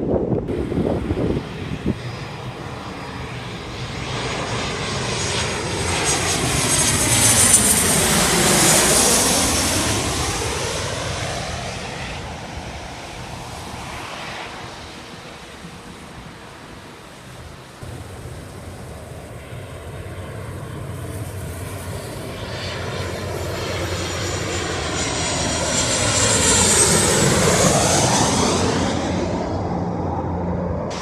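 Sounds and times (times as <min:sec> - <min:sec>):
jet airliner flying low: 0:00.0 - 0:31.0.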